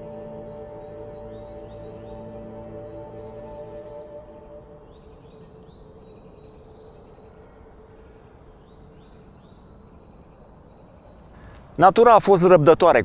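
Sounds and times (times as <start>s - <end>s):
soft music tone: 0.0s - 6.4s
faint background hiss: 0.0s - 13.0s.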